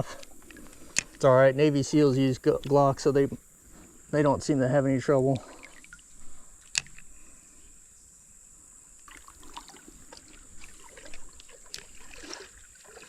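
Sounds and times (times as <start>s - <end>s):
creek water trickling: 0.0s - 7.9s, 8.9s - 13.0s
small splashes and knocks: 5.3s - 7.1s, 9.0s - 13.0s.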